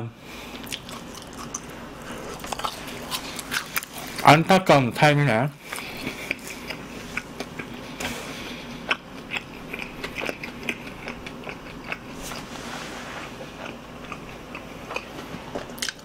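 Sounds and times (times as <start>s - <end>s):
person chewing crunchy food: 0.4s - 4.3s, 5.6s - 16.0s
wet mouth sounds: 8.8s - 12.4s.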